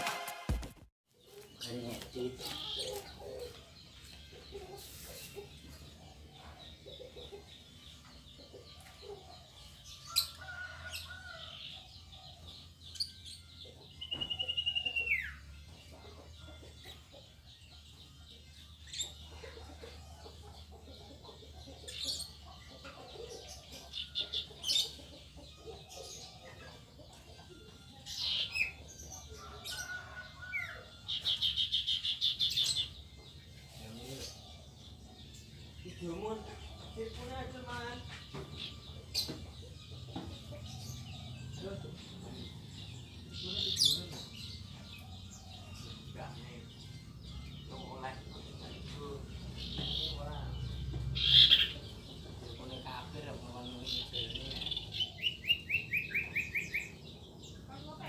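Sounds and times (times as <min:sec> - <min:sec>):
small birds chirping and chattering: 0:01.1 - 0:58.0.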